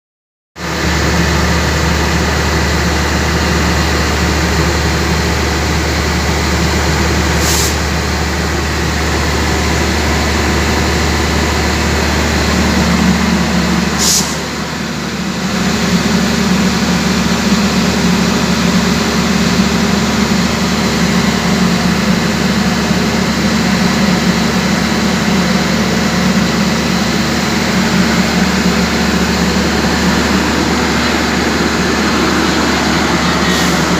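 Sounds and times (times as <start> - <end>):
diesel generator droning: 0.6 - 33.9
short hisses: 7.4 - 7.8, 14.0 - 14.4.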